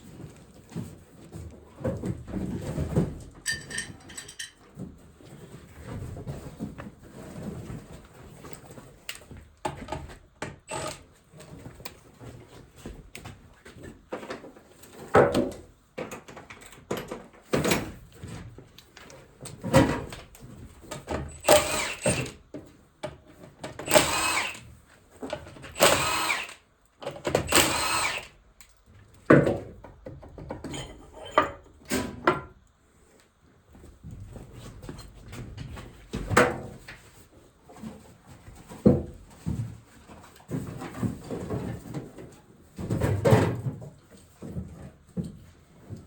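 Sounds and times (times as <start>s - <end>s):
metal tools clanking: 3.4s - 4.7s
power tool bursts: 10.7s - 11.0s, 21.3s - 22.4s, 23.8s - 24.7s, 25.7s - 26.6s, 27.4s - 28.4s.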